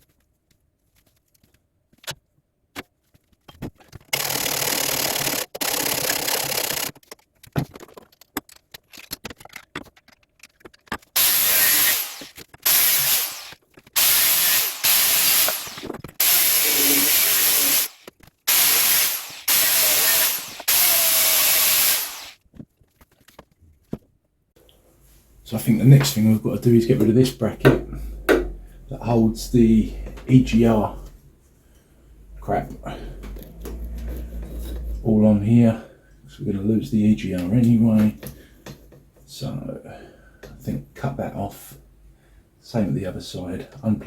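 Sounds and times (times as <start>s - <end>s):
angle grinder cutting steel: 11.2s - 22.4s.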